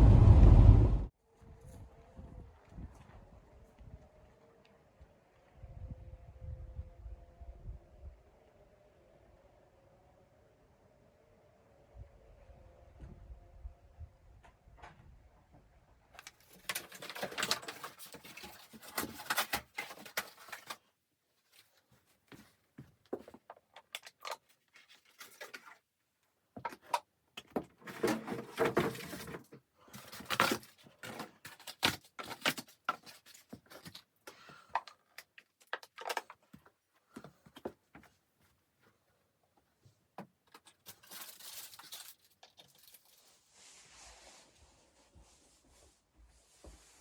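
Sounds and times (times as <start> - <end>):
rustling handling noises: 16.2 - 25.9, 26.6 - 43.6.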